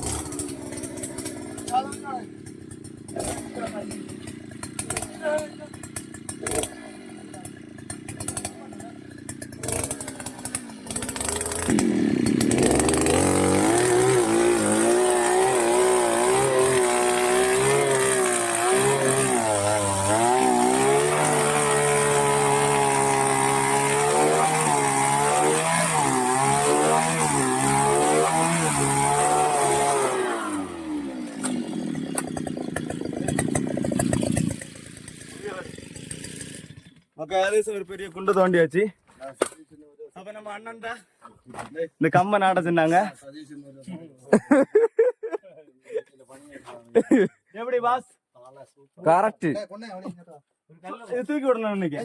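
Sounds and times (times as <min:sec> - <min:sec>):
earth auger petrol engine: 0:00.0 - 0:37.2.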